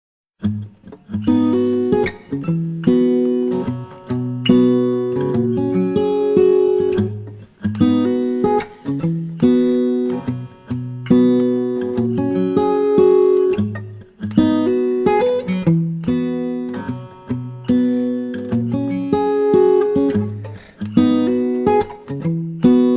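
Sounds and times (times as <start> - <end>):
acoustic guitar chords: 0.4 - 22.9.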